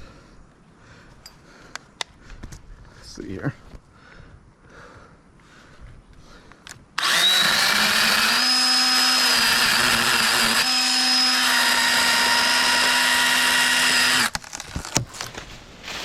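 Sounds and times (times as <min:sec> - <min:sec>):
electric chain saw whining: 0:07.0 - 0:15.0.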